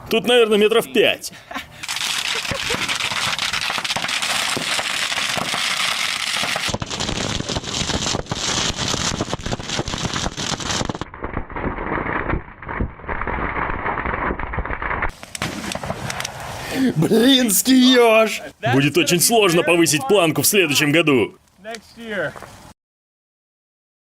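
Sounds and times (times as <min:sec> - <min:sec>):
firecrackers crackling and popping: 0:01.8 - 0:16.8.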